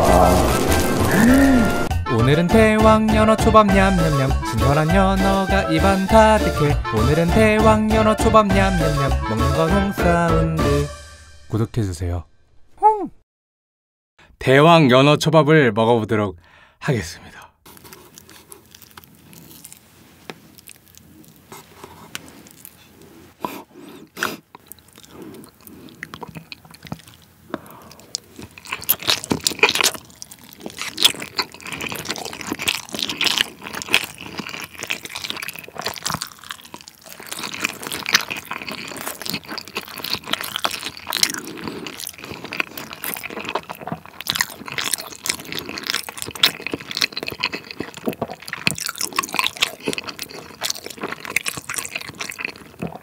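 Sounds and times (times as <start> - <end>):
chewing with smacking clicks: 17.7 - 22.8, 24.1 - 53.0.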